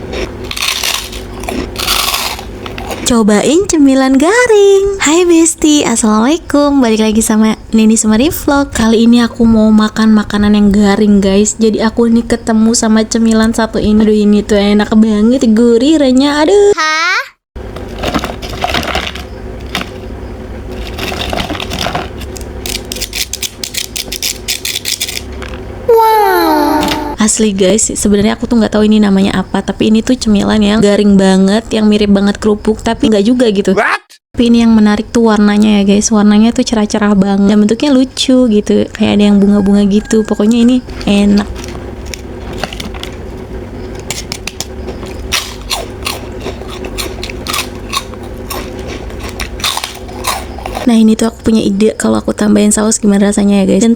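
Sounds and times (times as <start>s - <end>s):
crunching crispy cracker: 0.2s - 3.1s, 17.7s - 20.0s, 20.7s - 25.3s, 44.0s - 50.9s.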